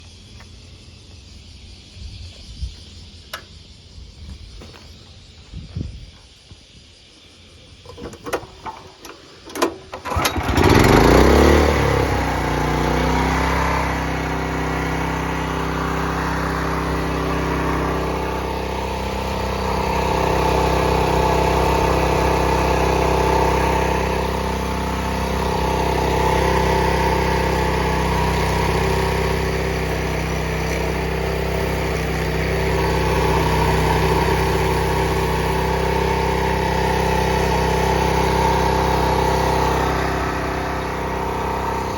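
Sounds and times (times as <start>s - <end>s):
small engine running: 7.8s - 41.9s
pull starter cord pulls: 7.9s - 13.3s.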